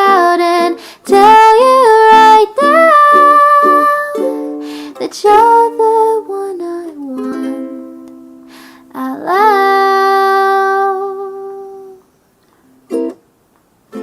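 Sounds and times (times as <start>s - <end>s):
ukulele chord: 0.0s - 8.6s, 12.8s - 13.2s.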